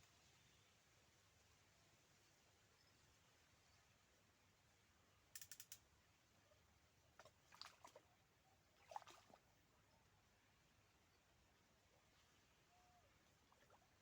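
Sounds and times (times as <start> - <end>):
faint clicking: 5.3 - 5.9.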